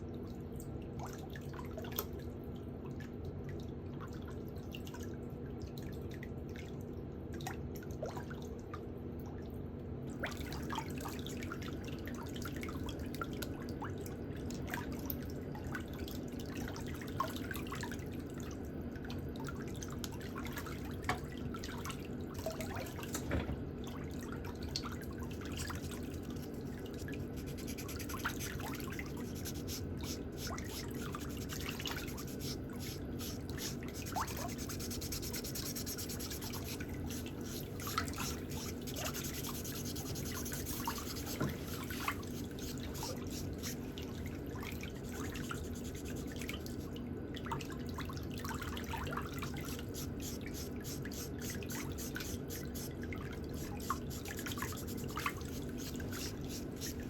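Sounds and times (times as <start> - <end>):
steady low hum: 16.6 - 47.6, 48.5 - 57.0.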